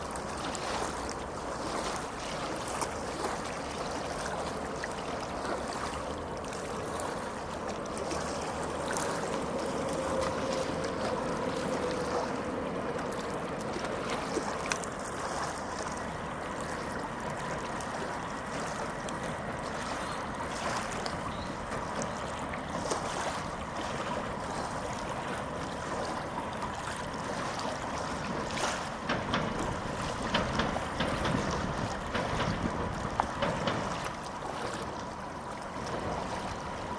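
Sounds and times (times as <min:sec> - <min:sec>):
tram rumbling: 0:06.7 - 0:15.0, 0:20.3 - 0:36.9
wheels clicking on rails: 0:07.5 - 0:16.2, 0:28.1 - 0:36.8.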